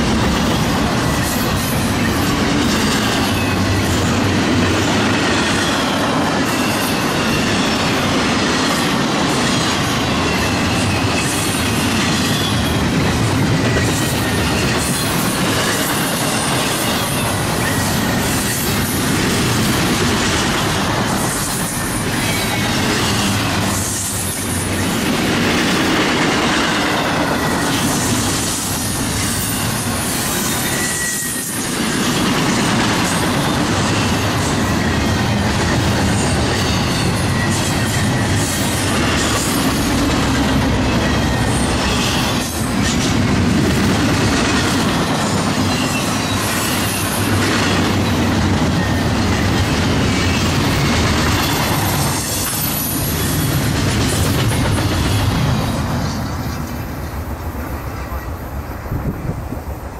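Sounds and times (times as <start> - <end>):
train wheels rumbling on rails: 0.0 - 59.9
high wheel squeal: 10.0 - 12.9, 27.0 - 32.0, 33.1 - 40.1, 40.8 - 42.7, 45.5 - 53.6.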